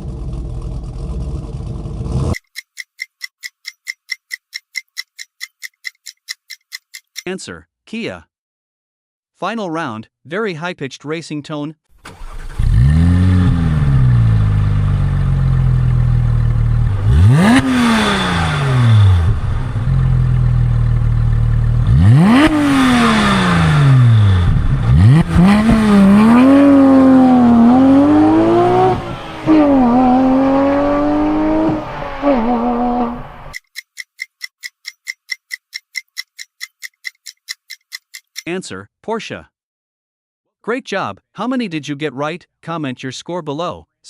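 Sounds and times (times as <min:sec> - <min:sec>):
car engine revving: 0:12.2 - 0:33.6.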